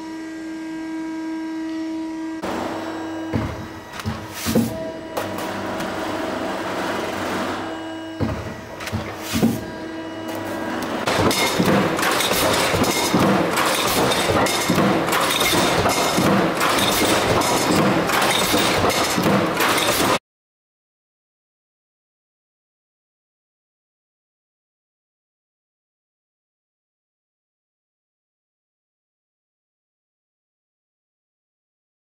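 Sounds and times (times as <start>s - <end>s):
machinery hum: 0.0s - 20.2s
metal clanks: 11.0s - 20.2s
fast clatter of metal knocks: 11.1s - 20.2s.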